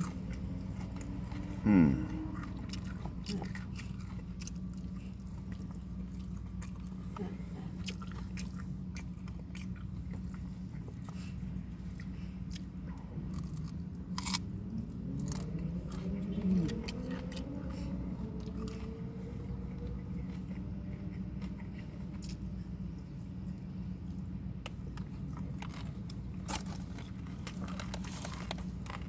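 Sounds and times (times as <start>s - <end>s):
person chewing crunchy food: 0.0s - 29.0s
steady low hum: 0.0s - 29.0s.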